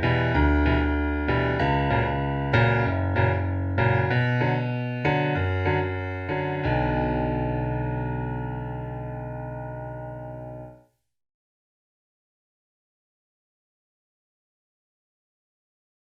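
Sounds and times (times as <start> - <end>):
piano playing: 0.0 - 10.9.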